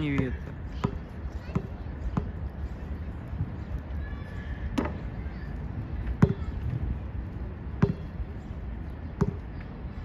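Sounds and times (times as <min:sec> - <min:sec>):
wind rumbling on microphone: 0:00.0 - 0:10.0
basketball bouncing on hard court: 0:07.8 - 0:08.2.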